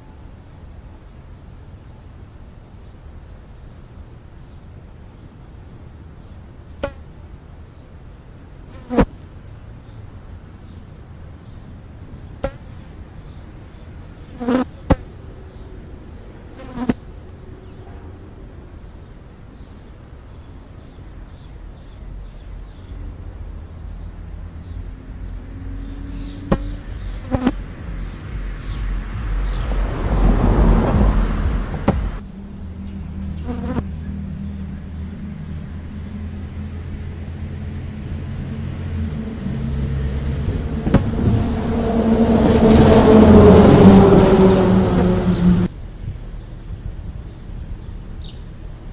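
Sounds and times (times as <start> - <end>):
steady low hum: 0.0 - 48.9
insect buzzing: 6.6 - 7.8, 8.6 - 9.4, 12.2 - 13.0, 14.2 - 15.6, 16.5 - 17.1, 25.4 - 28.8, 33.2 - 34.1
loud rushing noise: 25.8 - 32.2, 38.0 - 45.7
sharp knocks: 26.5 - 27.5, 30.8 - 32.2, 40.8 - 41.4.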